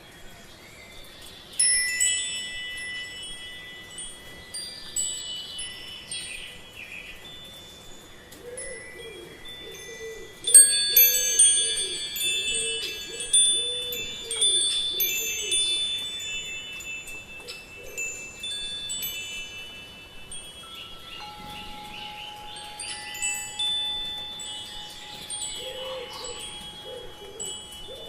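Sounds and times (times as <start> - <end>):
wind chime ringing: 1.5 - 28.0.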